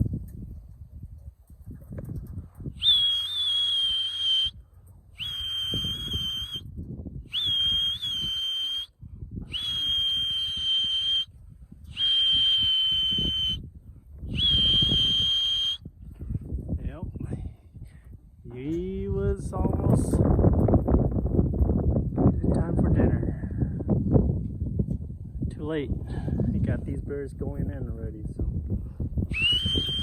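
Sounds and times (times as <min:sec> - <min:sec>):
whistle blasts: 0:02.8 - 0:04.6, 0:05.2 - 0:06.7, 0:07.3 - 0:08.9, 0:09.5 - 0:11.3, 0:11.9 - 0:13.6, 0:14.3 - 0:15.8, 0:29.3 - 0:30.0.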